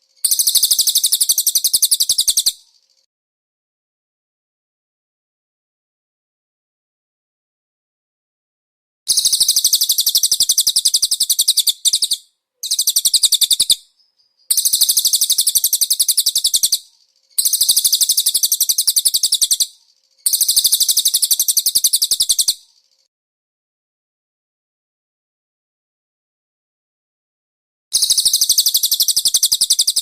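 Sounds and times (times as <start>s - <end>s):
bird high-pitched trill: 0.1s - 3.1s, 9.1s - 23.1s, 28.0s - 30.0s.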